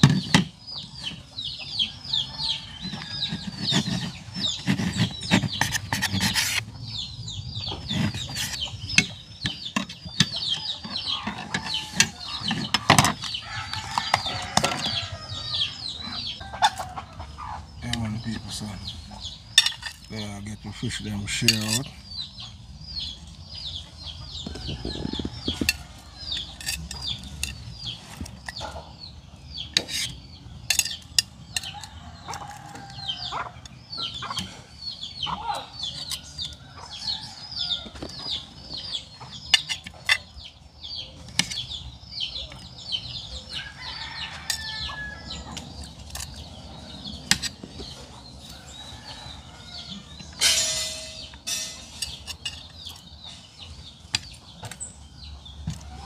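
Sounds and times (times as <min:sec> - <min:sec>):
bird chirping: 0:00.0 - 0:56.0
serving tongs clinking on plates: 0:50.4 - 0:53.0.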